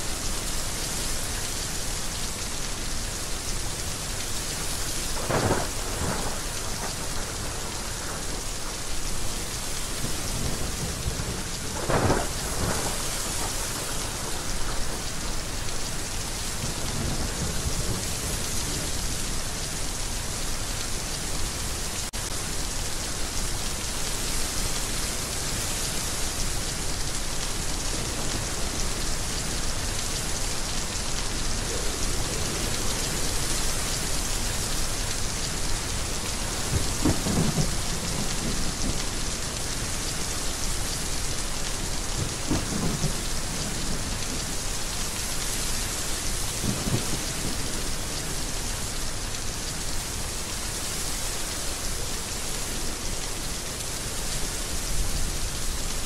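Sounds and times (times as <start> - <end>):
heavy rain falling: 0.0 - 56.0
thunder claps: 36.6 - 39.0, 42.2 - 44.3.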